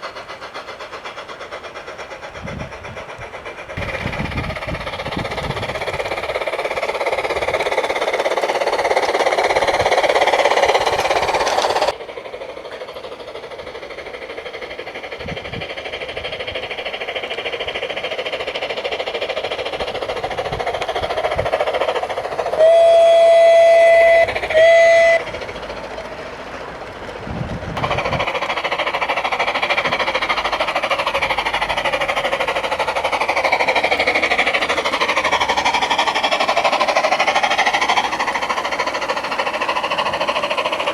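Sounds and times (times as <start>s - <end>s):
model steam locomotive chuffing: 0.0s - 40.9s
locomotive whistle: 9.6s - 11.9s, 22.4s - 26.3s.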